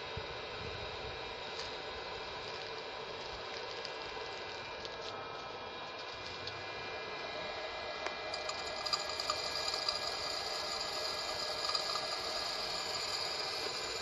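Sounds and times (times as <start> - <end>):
popcorn popper fan whirring: 0.0 - 14.0
kernels ticking: 8.3 - 14.0.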